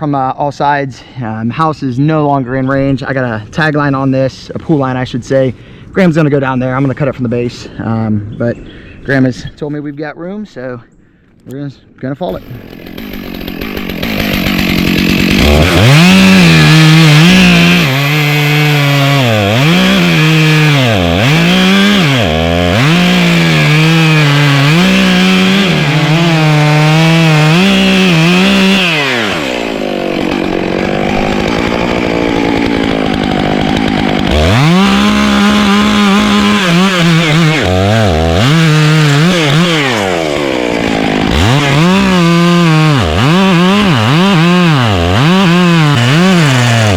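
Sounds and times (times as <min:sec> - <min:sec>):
chainsaw cutting wood: 0:12.3 - 0:46.9.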